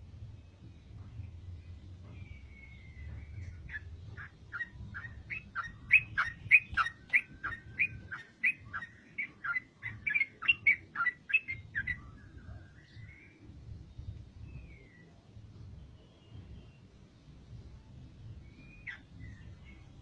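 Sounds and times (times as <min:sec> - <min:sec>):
faint bird whistle: 0:02.2 - 0:13.4, 0:18.4 - 0:19.8
bird chattering notes: 0:03.4 - 0:12.0.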